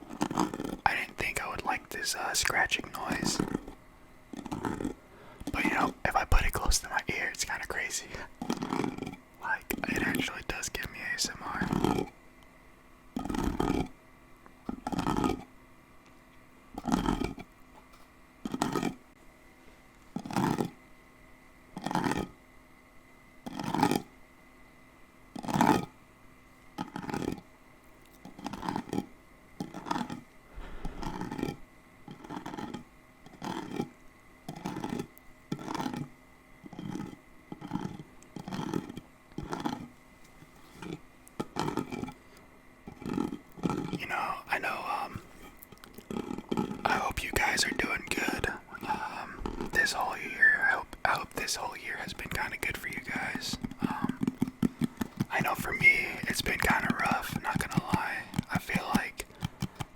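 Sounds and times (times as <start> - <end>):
scratching close to microphone: 51.1 - 59.9.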